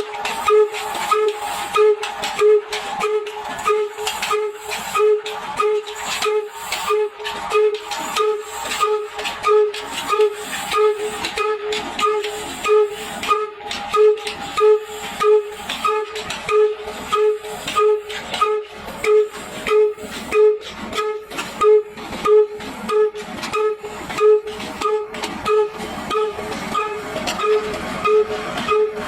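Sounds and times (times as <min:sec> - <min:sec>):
hooting exhaust beat: 0:00.0 - 0:29.0.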